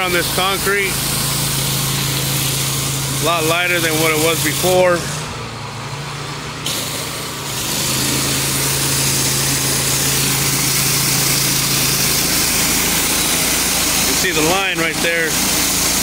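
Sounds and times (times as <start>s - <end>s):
pressure washer engine running: 0.0s - 16.0s
hissing water spray: 6.7s - 16.0s.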